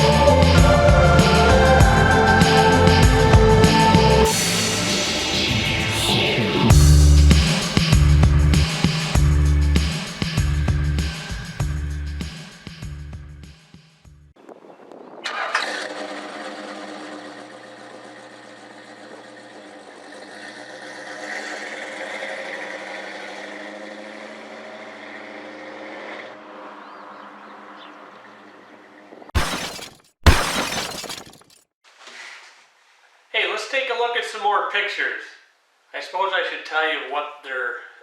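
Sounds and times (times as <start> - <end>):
vehicle engine running: 0.0 - 13.4, 15.6 - 28.4.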